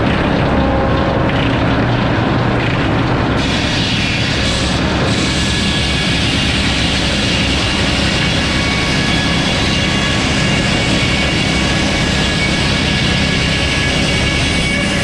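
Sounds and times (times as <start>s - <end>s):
sawmill sawing a log: 3.3s - 15.0s.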